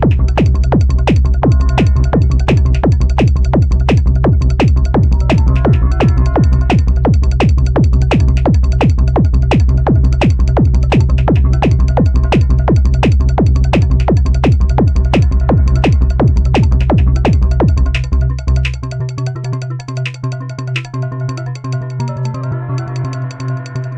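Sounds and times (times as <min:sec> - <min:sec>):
deep bass drone: 0:00.0 - 0:23.9.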